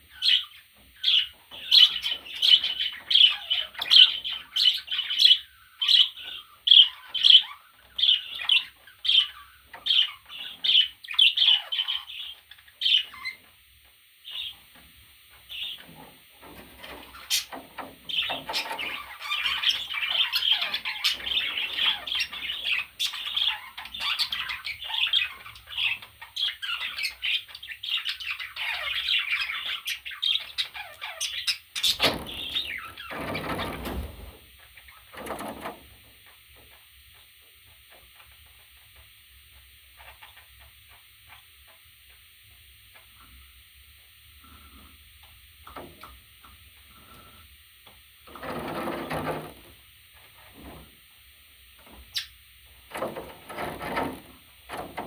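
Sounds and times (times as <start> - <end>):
budgerigar chirping: 0.1 - 13.4, 18.1 - 33.6.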